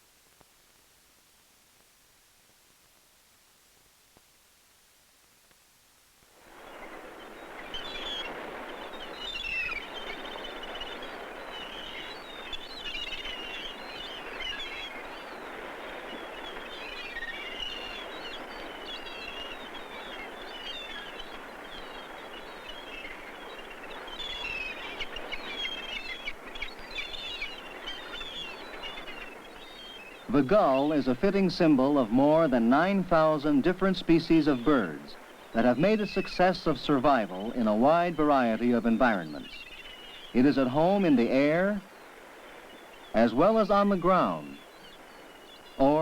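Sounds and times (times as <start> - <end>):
gulls calling: 6.8 - 46.0.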